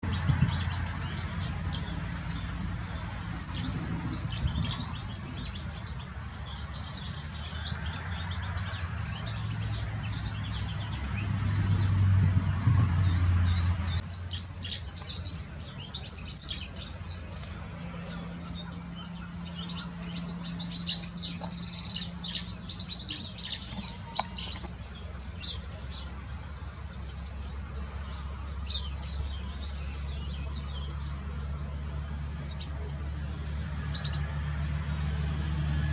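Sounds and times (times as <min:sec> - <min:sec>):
bird singing high-pitched runs: 0:00.0 - 0:07.5, 0:14.0 - 0:17.4, 0:18.4 - 0:26.2
quiet bird twittering: 0:00.0 - 0:35.9.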